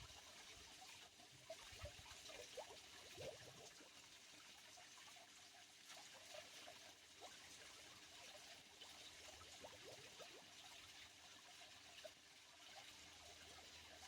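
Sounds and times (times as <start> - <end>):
stream trickling over stones: 0.0 - 14.0.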